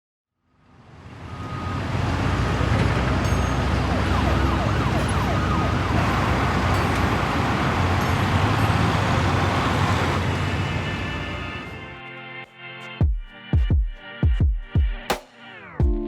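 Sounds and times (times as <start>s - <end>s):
city traffic rumble: 0.6s - 12.0s
emergency vehicle siren: 0.8s - 12.0s.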